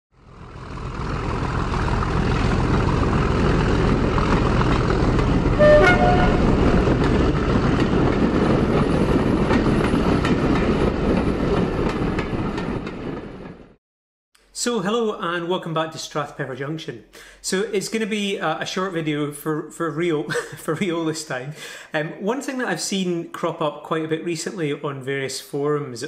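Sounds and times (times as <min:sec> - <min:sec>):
railway train running: 0:00.4 - 0:13.7
two-note train horn: 0:05.5 - 0:07.1.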